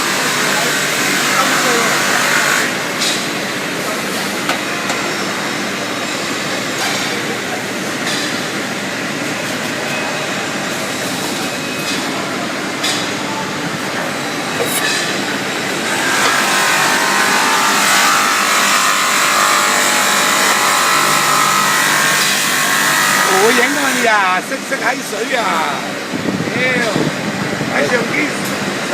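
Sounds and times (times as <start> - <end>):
sanding machine grinding metal: 0.0 - 2.7, 15.7 - 24.1.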